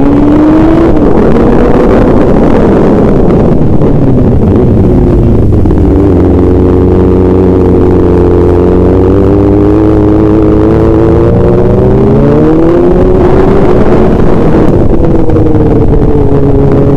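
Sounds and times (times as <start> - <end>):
vehicle engine accelerating: 0.0 - 16.9.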